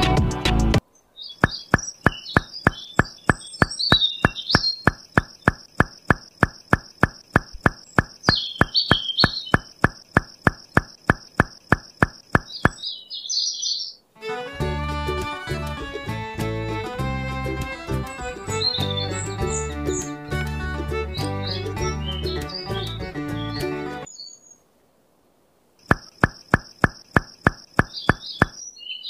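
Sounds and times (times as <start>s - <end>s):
music: 0.0s - 0.8s, 14.2s - 24.1s
birds chirping: 0.8s - 14.1s, 17.4s - 24.7s, 25.8s - 29.0s
even ticking: 1.4s - 12.8s, 25.8s - 28.6s.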